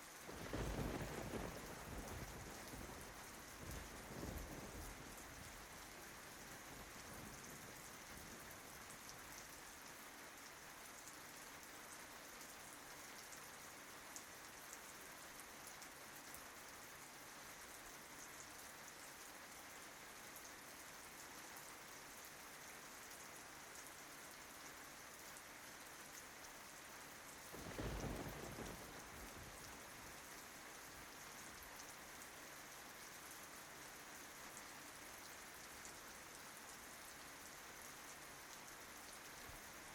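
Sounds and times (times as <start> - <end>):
rain falling on leaves: 0.0 - 39.9
low rumble of thunder: 0.3 - 8.5, 27.5 - 30.4.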